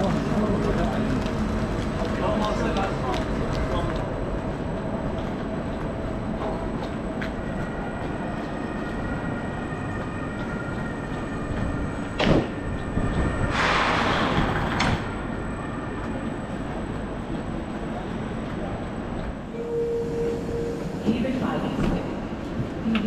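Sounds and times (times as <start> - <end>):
train low hum and rumble: 0.0 - 23.0
air hiss: 13.5 - 14.4.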